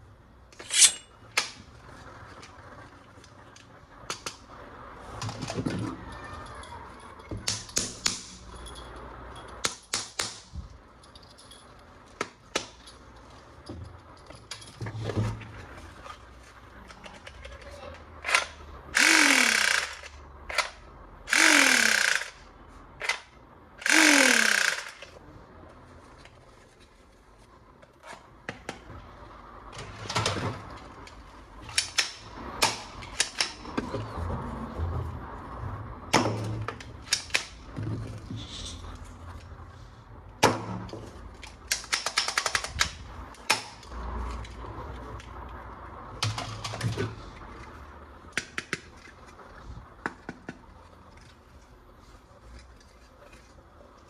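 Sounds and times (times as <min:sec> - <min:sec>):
toy gun hissing bursts: 0:18.9 - 0:20.1, 0:21.3 - 0:22.4, 0:23.8 - 0:25.1
plastic parts clicking and knocking: 0:29.8 - 0:34.1, 0:40.4 - 0:44.6.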